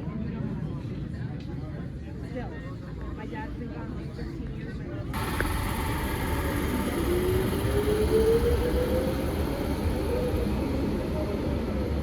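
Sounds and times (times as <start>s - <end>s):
vehicle engine rumble: 4.9s - 12.0s
rising whine: 5.2s - 11.7s.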